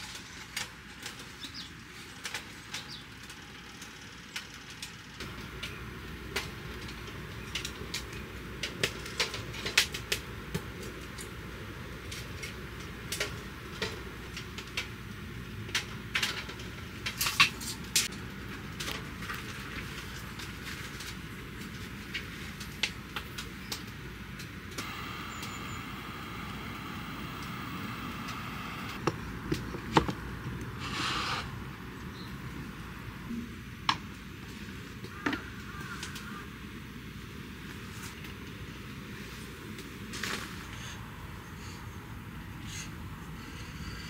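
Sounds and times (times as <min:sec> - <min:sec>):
steady hiss: 0:24.5 - 0:29.0.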